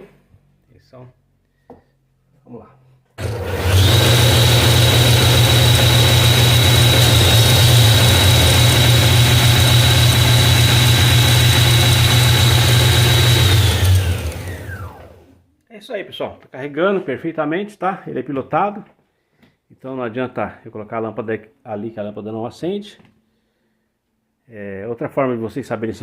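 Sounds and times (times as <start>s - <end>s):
alternator motor hum and whine: 3.2s - 15.3s.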